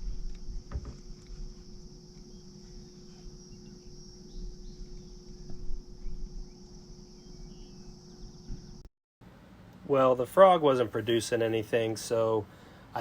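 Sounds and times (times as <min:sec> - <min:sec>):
crickets and insects chirping: 0:00.0 - 0:08.8.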